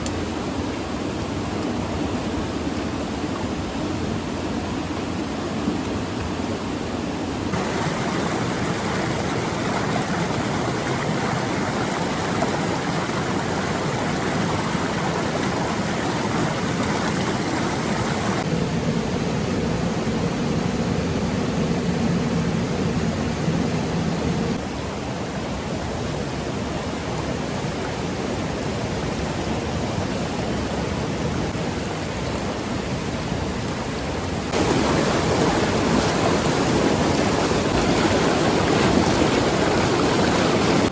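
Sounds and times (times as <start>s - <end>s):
rain: 0.0s - 20.1s, 21.1s - 40.9s
floodwater rushing: 7.3s - 18.5s, 26.8s - 40.9s.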